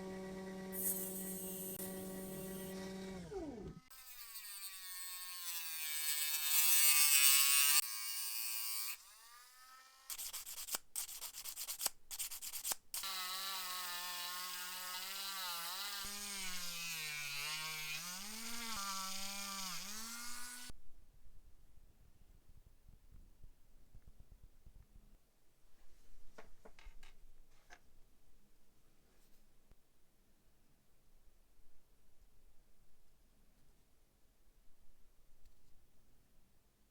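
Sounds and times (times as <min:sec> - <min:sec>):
rotary tool grinding metal: 0:00.0 - 0:20.7
scratchy strokes and clicks: 0:10.1 - 0:20.7.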